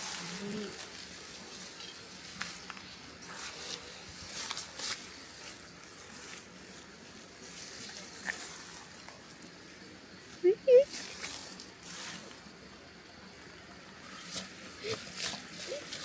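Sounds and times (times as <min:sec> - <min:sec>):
rustling with crackles: 0:00.0 - 0:12.6.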